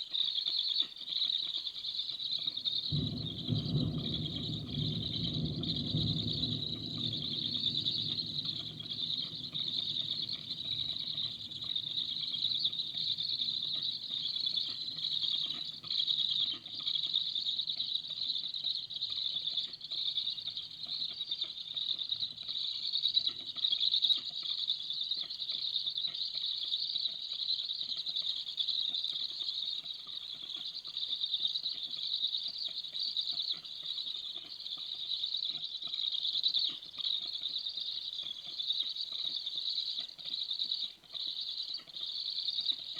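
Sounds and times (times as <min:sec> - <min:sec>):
raindrops pattering: 0:00.0 - 0:42.9
heavy rain through forest canopy: 0:02.6 - 0:17.2.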